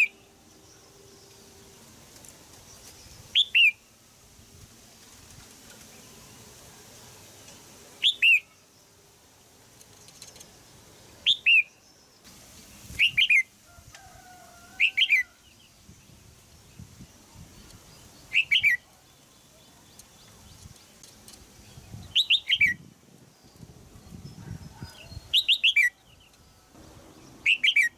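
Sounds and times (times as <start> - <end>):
bulbul sharp chirping calls: 18.3 - 18.8, 24.3 - 26.4, 27.4 - 27.9.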